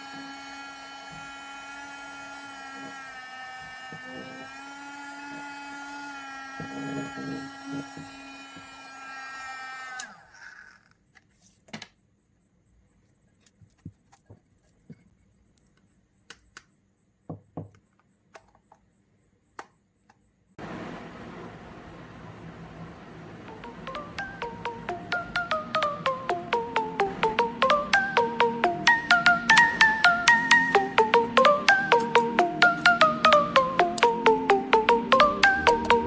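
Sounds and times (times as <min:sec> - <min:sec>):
small vacuum motor whining: 0:00.0 - 0:10.7, 0:20.6 - 0:34.3.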